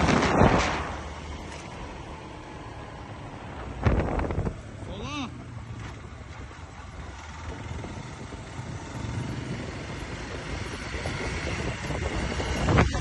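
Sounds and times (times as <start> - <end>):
wind rushing over microphone: 0.0 - 2.2, 3.0 - 4.9, 5.9 - 13.0
motorcycle engine running: 5.8 - 13.0.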